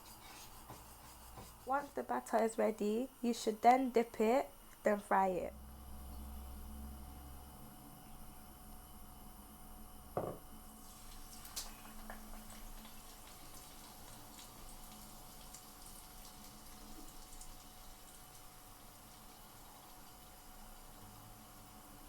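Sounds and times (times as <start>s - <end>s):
sharp clunk: 10.2s - 10.4s
prawns sizzling in hot oil: 10.7s - 22.0s.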